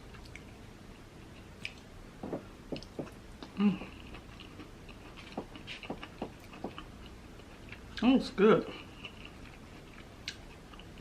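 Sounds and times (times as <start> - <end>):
wet lip smacks and mouth clicks: 1.6 - 4.6
close chewing: 8.8 - 11.0.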